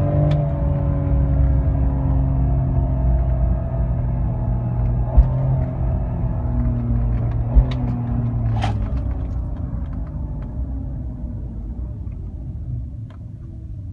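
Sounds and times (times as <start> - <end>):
car exhaust rumble: 0.0 - 13.9
low thump: 5.1 - 5.9, 7.4 - 9.7.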